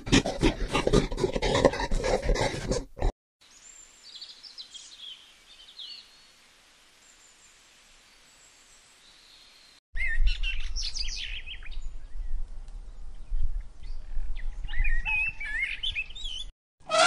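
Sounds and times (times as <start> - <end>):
birds chirping and whistling: 10.0 - 11.9, 13.8 - 16.5.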